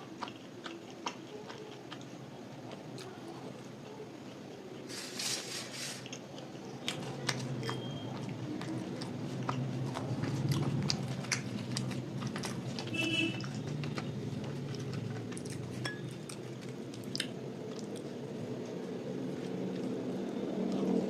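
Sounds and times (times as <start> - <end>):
person chewing food: 0.0 - 5.2, 5.9 - 21.0.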